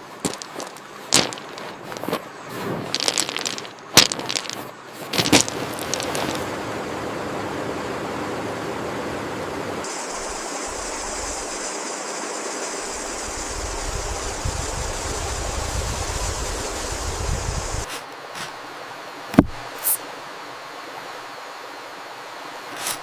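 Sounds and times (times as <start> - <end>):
low rumble of wind: 0.0 - 11.6, 12.9 - 17.9
rainfall hiss: 0.0 - 23.0.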